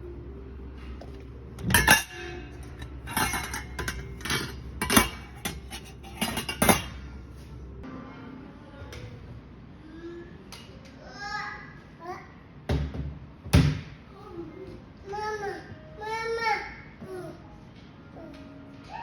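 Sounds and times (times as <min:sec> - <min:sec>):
hard objects clattering: 0:01.0 - 0:07.1.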